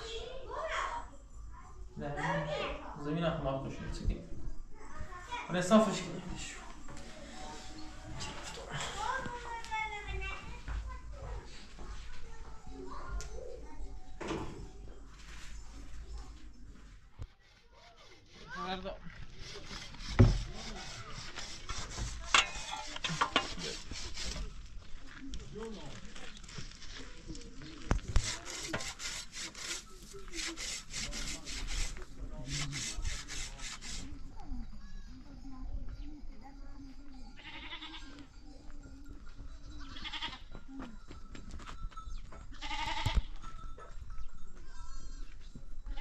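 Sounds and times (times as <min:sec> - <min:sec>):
soil and stones scraping: 0:19.0 - 0:34.0
goats bleating: 0:37.4 - 0:38.0, 0:39.9 - 0:40.4, 0:42.6 - 0:43.3.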